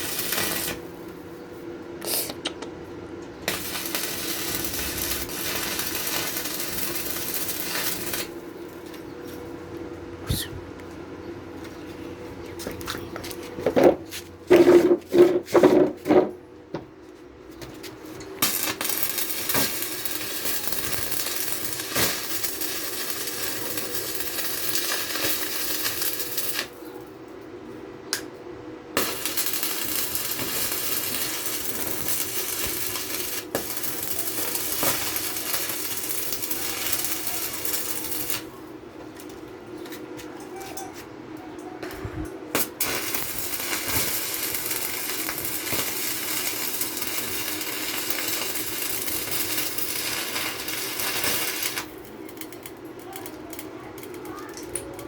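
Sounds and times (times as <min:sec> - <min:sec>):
arc welding crackling hiss: 0:00.0 - 0:01.3, 0:03.4 - 0:08.6, 0:18.4 - 0:26.8, 0:29.0 - 0:38.5, 0:42.5 - 0:54.6.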